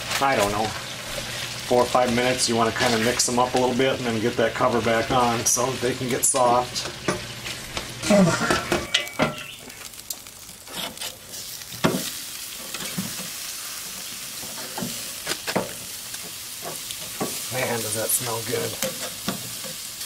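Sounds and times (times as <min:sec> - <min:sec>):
meat sizzling on a grill: 0:00.0 - 0:20.0
spatula scraping potatoes in pan: 0:10.6 - 0:20.0.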